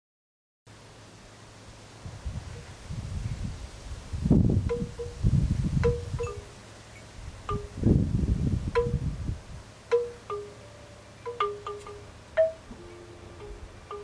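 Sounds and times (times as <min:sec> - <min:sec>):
wind rumble on microphone: 0:01.8 - 0:09.7
wind chimes ringing: 0:04.6 - 0:07.9, 0:08.7 - 0:09.2, 0:09.9 - 0:14.0.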